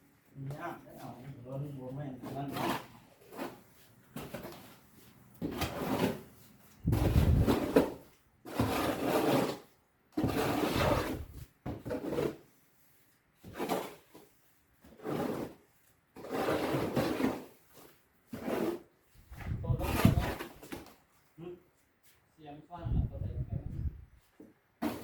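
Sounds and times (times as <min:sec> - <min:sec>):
spade scraping wet mortar: 0:02.1 - 0:04.7, 0:05.4 - 0:12.5, 0:13.4 - 0:20.8.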